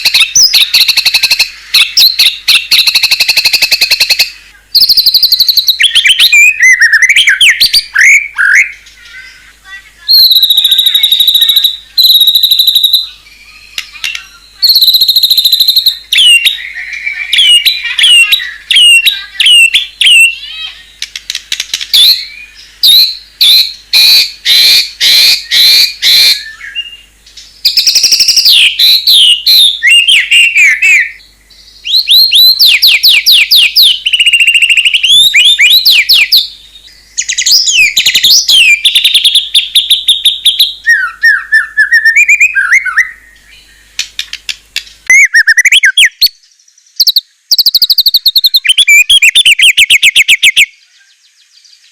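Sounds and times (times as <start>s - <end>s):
songbird singing varied song: 0.0s - 51.9s.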